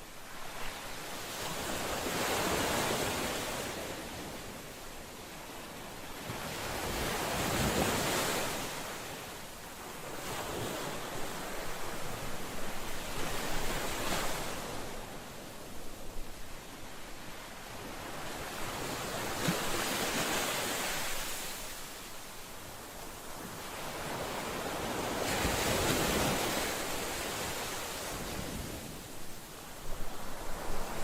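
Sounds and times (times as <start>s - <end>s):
ocean waves washing ashore: 0.0s - 31.0s.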